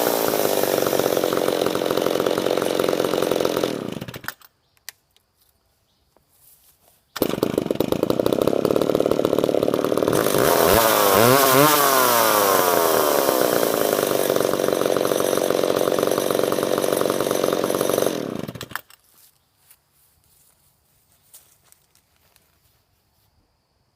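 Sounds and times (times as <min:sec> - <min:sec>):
chainsaw revving: 0:00.0 - 0:04.4, 0:07.2 - 0:18.9.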